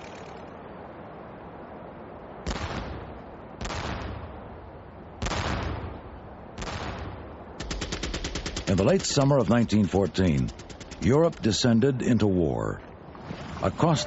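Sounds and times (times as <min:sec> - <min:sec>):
machine-gun fire: 0:06.6 - 0:11.6.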